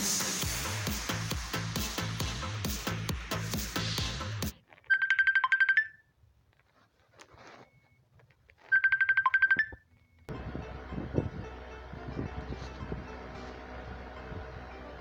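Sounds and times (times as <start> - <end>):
electronic trilling alert tone: 8.7 - 9.8
rushing noise with low hum: 10.3 - 15.0.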